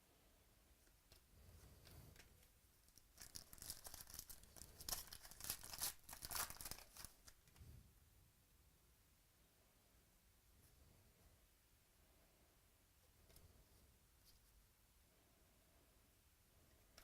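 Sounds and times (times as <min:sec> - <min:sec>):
foil wrapper tearing and crinkling: 0:03.0 - 0:07.4.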